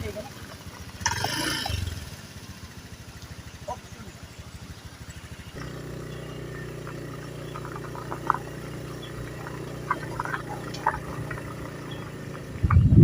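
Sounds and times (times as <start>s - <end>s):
small engine humming: 0.0s - 13.0s.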